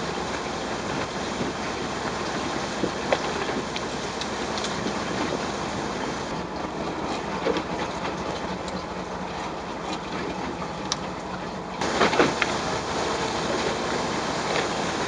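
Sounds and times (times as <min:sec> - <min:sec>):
wind noise on microphone: 0:00.0 - 0:06.4
boat engine running: 0:00.0 - 0:15.0
water noise: 0:00.0 - 0:15.0.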